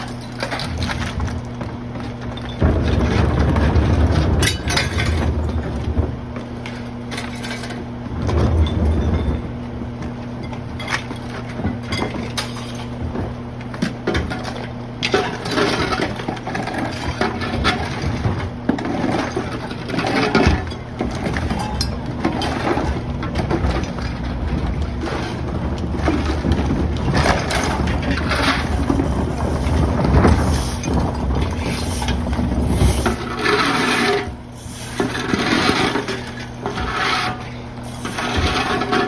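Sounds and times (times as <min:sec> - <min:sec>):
wood and glass breaking: 0:00.0 - 0:05.9, 0:10.4 - 0:34.4
garbage truck engine running: 0:00.0 - 0:39.0.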